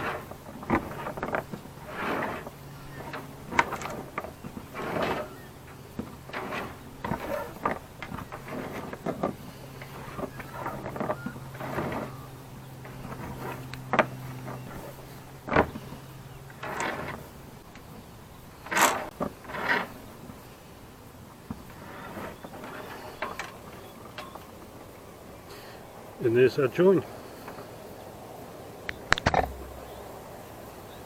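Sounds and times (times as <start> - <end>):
rope sliding and scraping: 0.0 - 24.7
sharp knocks: 29.1 - 30.0.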